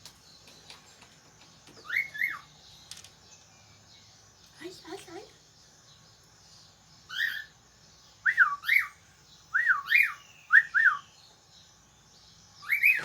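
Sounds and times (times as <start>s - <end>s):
bird whistling calls: 7.1s - 7.5s, 8.2s - 11.2s, 12.6s - 13.0s.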